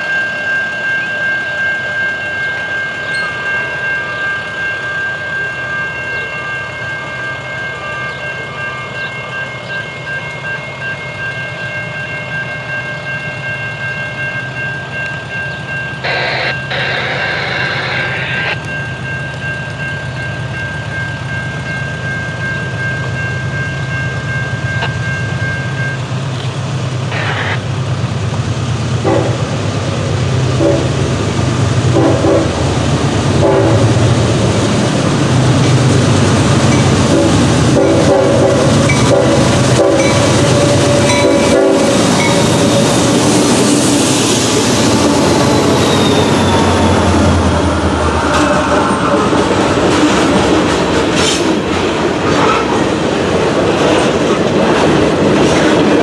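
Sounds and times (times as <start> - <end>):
high-pitched ringing tone: 0.0 - 26.1
train rumbling by: 0.0 - 56.0
loud noisy burst: 16.0 - 18.5, 27.1 - 27.7.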